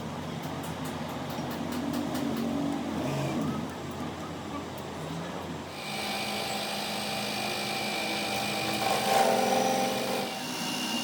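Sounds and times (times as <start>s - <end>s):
power tool rasping on metal: 5.8s - 11.0s.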